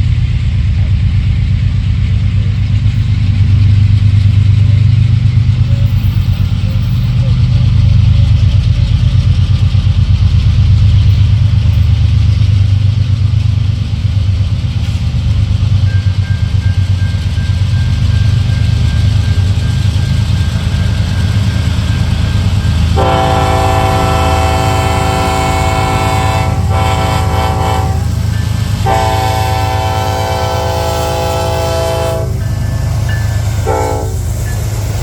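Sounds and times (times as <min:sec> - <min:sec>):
locomotive air horn: 0:23.0 - 0:28.2, 0:28.8 - 0:32.5, 0:33.6 - 0:34.3.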